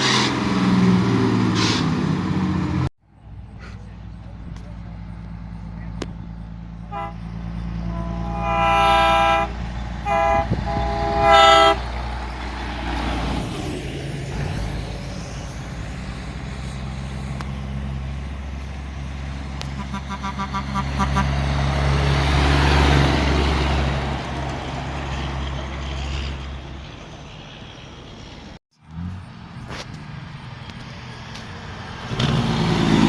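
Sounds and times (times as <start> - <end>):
diesel truck engine running: 0.0 - 29.7
fluttering horn toots: 6.8 - 12.0, 19.6 - 21.6
truck air horn blasting: 6.8 - 12.2, 19.6 - 21.8.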